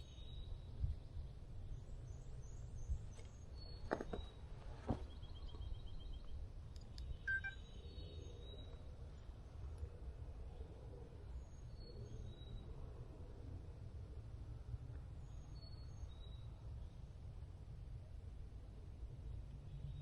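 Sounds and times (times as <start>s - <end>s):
songbirds singing and calling: 0.0s - 9.8s.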